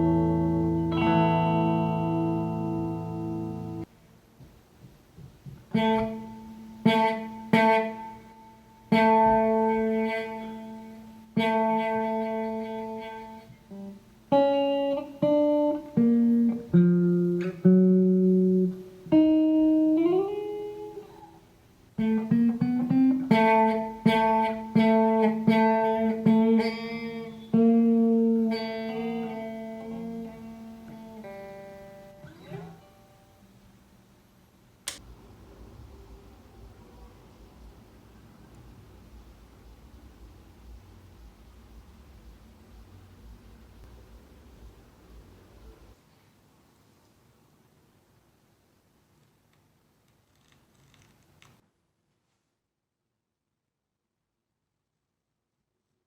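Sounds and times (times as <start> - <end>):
guitar plucked notes and chords: 0.0 - 3.9, 5.7 - 21.4, 22.0 - 33.6.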